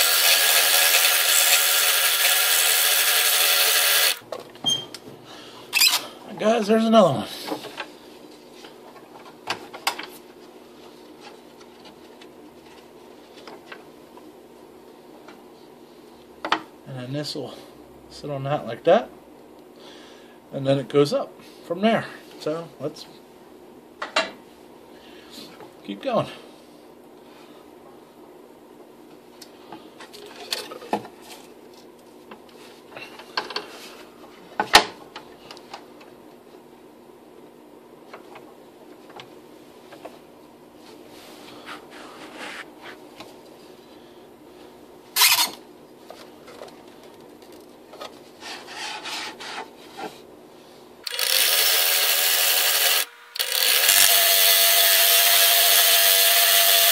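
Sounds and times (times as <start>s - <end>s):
scroll saw humming: 0.0s - 4.2s, 51.0s - 56.9s
faint steady hum: 3.4s - 51.2s.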